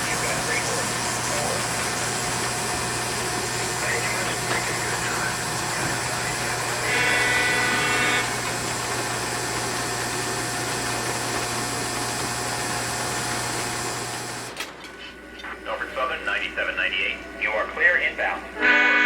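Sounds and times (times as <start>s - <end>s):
diesel engine running: 0.0s - 14.6s
locomotive horn blast: 5.4s - 8.6s, 18.6s - 19.0s.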